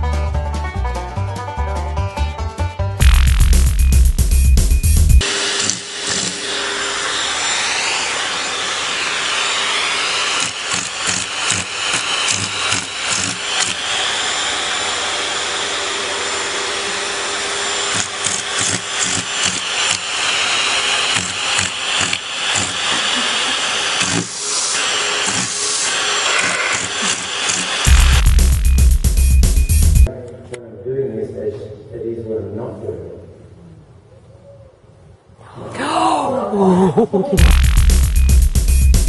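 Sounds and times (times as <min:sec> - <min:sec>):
vacuum cleaner running: 0:05.2 - 0:30.1, 0:37.4 - 0:39.0.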